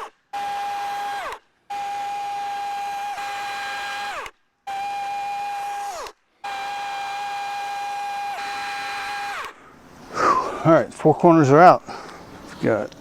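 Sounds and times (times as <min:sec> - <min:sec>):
chainsaw cutting wood: 0:00.0 - 0:10.4.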